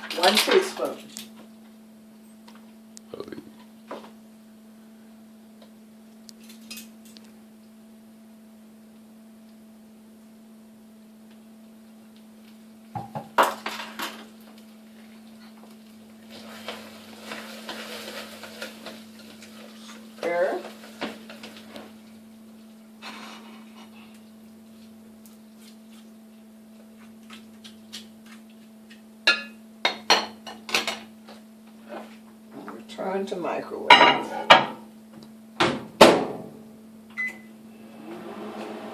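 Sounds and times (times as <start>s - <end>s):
steady low hum: 0.0s - 17.3s.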